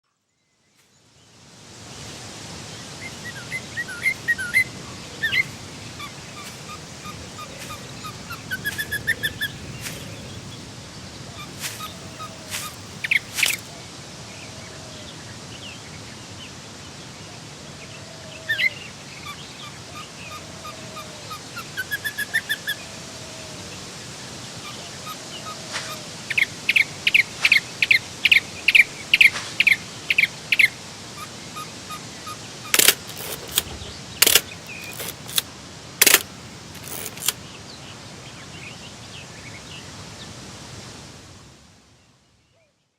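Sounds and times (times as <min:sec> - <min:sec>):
steady hiss: 0:01.4 - 0:13.8
songbirds chirping: 0:02.0 - 0:13.8, 0:32.0 - 0:37.7
soft low bird calls: 0:02.8 - 0:13.8
sharp clicks: 0:03.9 - 0:10.6, 0:11.5 - 0:13.7, 0:32.8 - 0:37.4.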